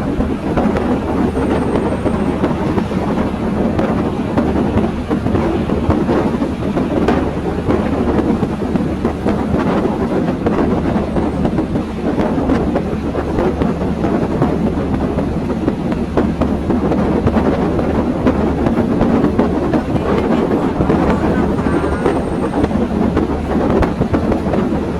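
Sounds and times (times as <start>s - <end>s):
train wheels rumbling on rail: 0.0s - 24.9s
low hum: 0.9s - 5.4s, 19.3s - 23.7s.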